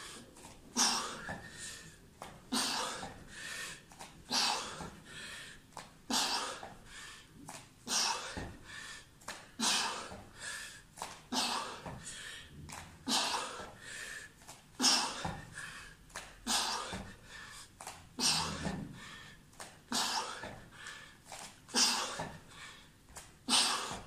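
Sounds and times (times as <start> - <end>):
person breathing hard: 0.0 - 24.0.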